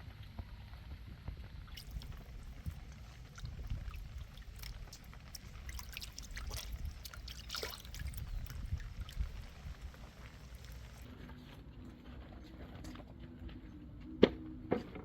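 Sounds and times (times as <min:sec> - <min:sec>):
rain drops pattering: 0:00.3 - 0:11.1
steady low rumble: 0:00.9 - 0:11.2.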